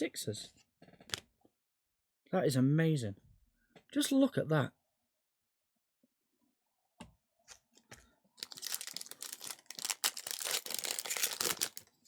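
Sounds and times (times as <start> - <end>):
packaging crinkling and rustling: 8.4 - 12.0.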